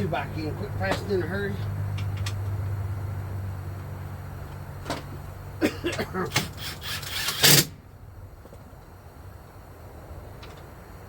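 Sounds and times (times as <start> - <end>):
steady low hum: 0.0 - 11.0
tools clicking and knocking: 6.0 - 7.7.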